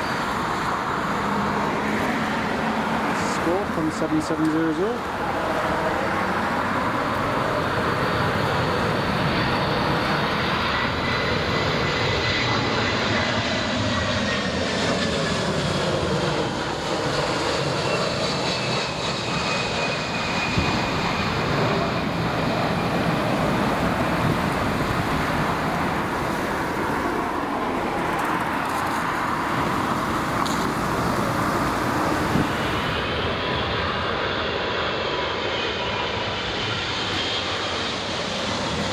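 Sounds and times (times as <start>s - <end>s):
jet engines passing with whine: 0.0s - 38.9s.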